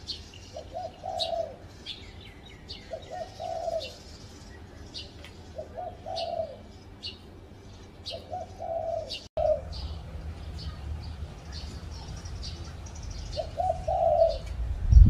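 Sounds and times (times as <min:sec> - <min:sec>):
small birds chirping: 0:00.0 - 0:15.0
dove cooing: 0:00.5 - 0:01.7, 0:02.7 - 0:04.1, 0:05.5 - 0:06.8, 0:08.1 - 0:10.0, 0:13.2 - 0:14.6.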